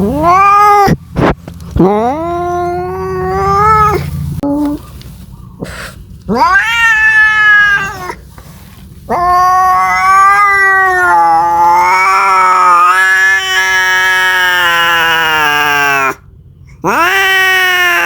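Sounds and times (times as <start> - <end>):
cat yowling: 0.0 - 1.0, 1.8 - 4.7, 6.3 - 8.2, 9.1 - 16.2, 16.8 - 18.0.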